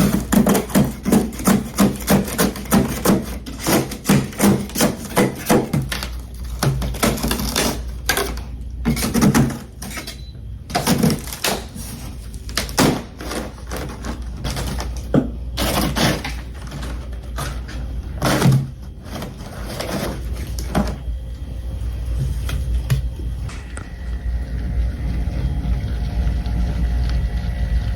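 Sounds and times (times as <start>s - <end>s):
crunching and chewing ice: 0.0s - 9.8s
steady low hum: 0.0s - 27.9s.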